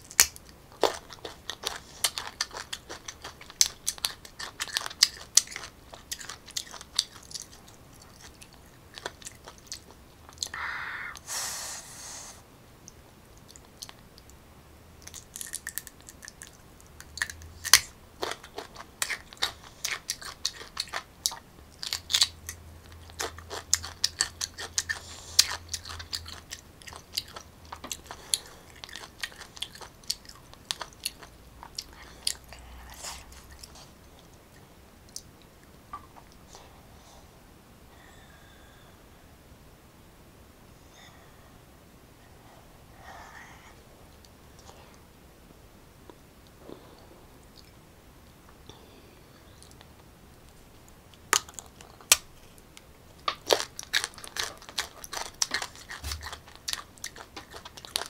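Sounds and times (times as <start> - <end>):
crunching and chewing mango: 0.0 - 10.5, 15.0 - 35.3, 51.2 - 58.0
short hiss: 10.6 - 12.4.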